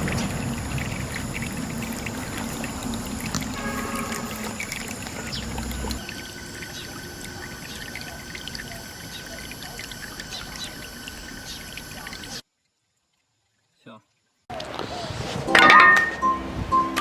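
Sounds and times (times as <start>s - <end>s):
water pouring and trickling: 0.0s - 12.4s, 13.0s - 17.0s
music: 15.4s - 17.0s.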